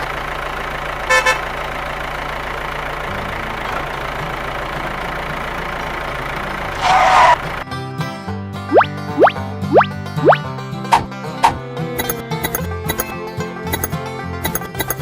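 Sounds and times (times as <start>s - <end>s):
tractor engine running: 0.0s - 15.0s
horn toots: 1.1s - 1.5s.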